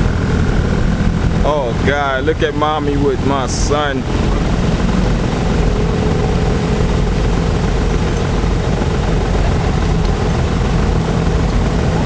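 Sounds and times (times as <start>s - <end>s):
bumper boat motors droning: 0.0s - 12.0s.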